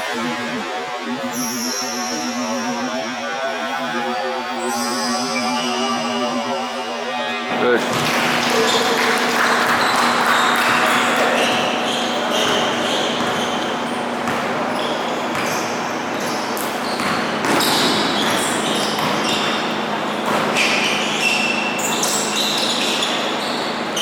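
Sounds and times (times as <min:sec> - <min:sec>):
basketball bouncing on court: 0:09.7 - 0:23.7.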